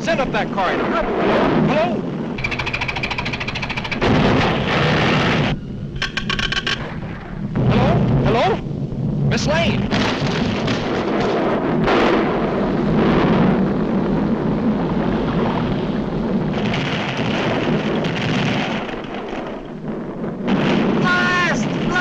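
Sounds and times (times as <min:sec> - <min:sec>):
explosive blasts: 0:00.0 - 0:06.1, 0:06.8 - 0:22.0
cartoon volcano rumbling: 0:00.0 - 0:22.0.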